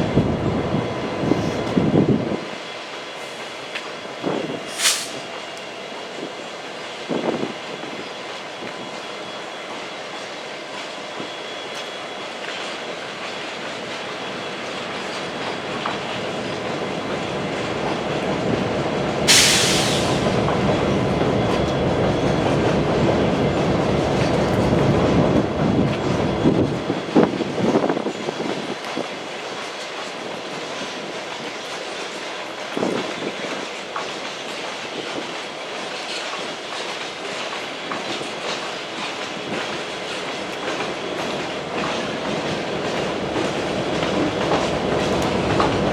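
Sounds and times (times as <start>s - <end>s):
train rumble: 0.0s - 45.9s
sharp hiss: 4.6s - 5.4s, 19.3s - 20.4s
wheels clacking over rail joints: 28.0s - 45.9s.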